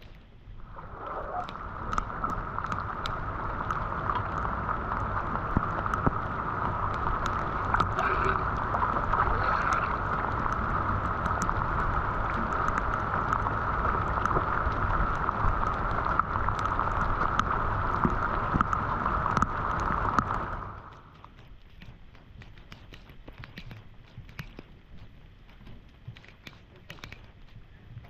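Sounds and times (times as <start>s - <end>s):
water rushing: 0.0s - 21.2s
small splashes and drips: 0.0s - 28.0s.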